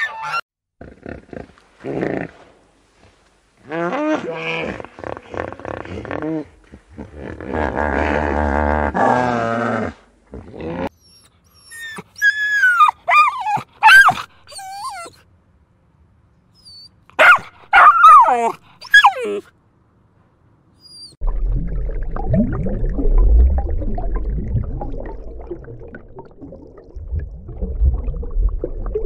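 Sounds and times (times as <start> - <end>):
animal growling: 3.6 - 10.9.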